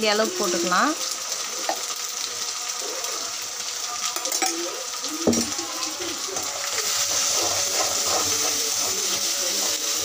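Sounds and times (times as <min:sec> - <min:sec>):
spices sizzling in a pan: 0:00.0 - 0:10.0
spoon clanking against pan: 0:04.1 - 0:05.6
metal spoon scraping a pan: 0:05.4 - 0:10.0.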